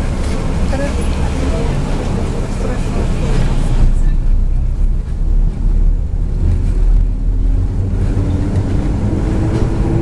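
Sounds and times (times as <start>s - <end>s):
bus diesel engine rumbling: 0.0s - 10.0s.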